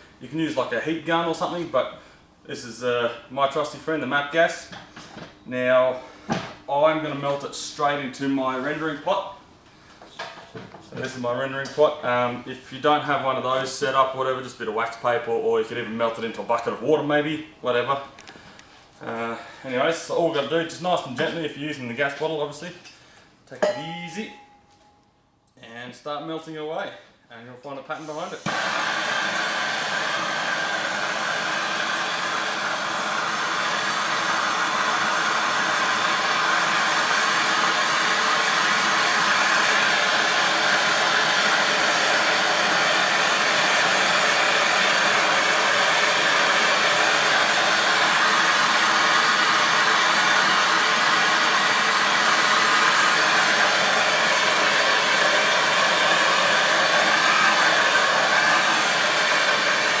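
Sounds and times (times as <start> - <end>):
gas torch hissing: 27.9 - 60.0.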